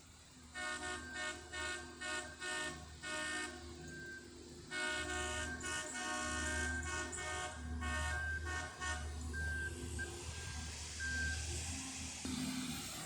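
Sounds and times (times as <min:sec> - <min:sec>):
locomotive air horn blasts: 0:00.5 - 0:03.9, 0:04.7 - 0:09.7.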